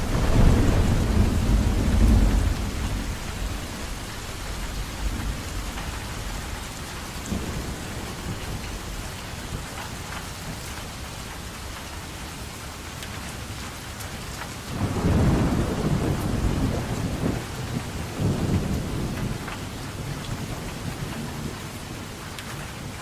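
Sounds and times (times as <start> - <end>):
thunder rumbling: 0.0 - 9.8, 14.7 - 23.0
steady rain falling: 0.0 - 23.0.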